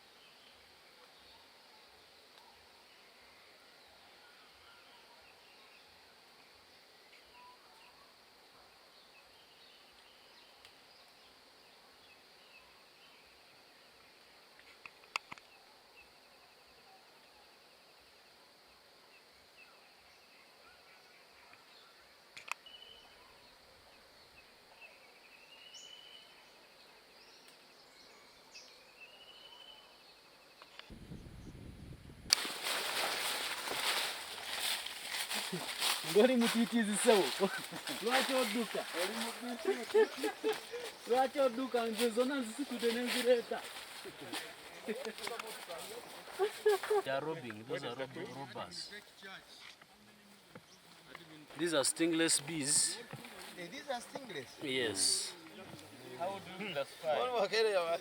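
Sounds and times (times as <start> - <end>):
high insect hiss: 0.0 - 48.0, 48.6 - 58.0
birds chirping: 32.3 - 49.6, 50.3 - 58.0.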